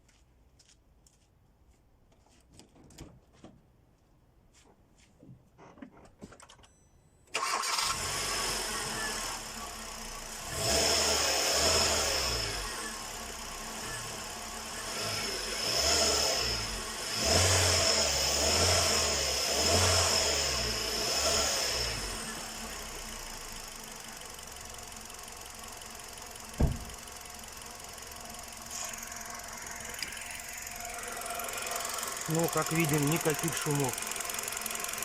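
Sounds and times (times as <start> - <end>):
car engine starting and revving: 7.4 - 35.0.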